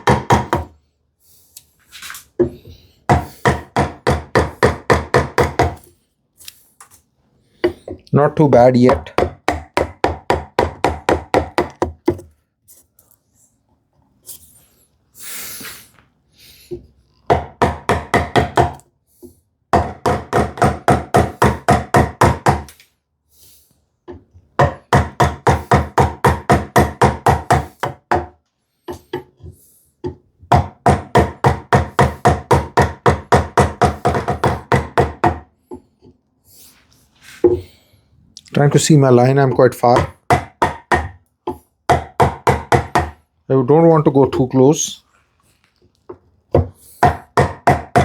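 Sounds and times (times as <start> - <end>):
mallet tapping a chisel into wood: 0.0 - 0.7, 3.1 - 5.8, 8.9 - 12.3, 17.3 - 18.8, 19.7 - 22.7, 24.1 - 29.4, 30.0 - 35.8, 39.6 - 43.2, 46.5 - 48.0.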